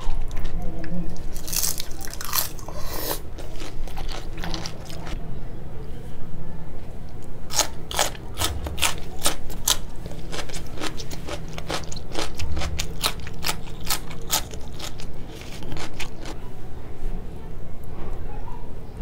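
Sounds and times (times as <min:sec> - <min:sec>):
cucumber crunching when chewed: 0:01.2 - 0:05.2, 0:07.5 - 0:16.4.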